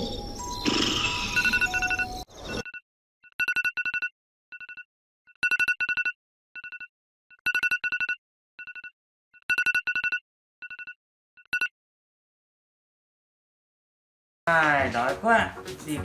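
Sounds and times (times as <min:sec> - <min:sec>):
telephone ringtone trilling: 0:00.1 - 0:11.7.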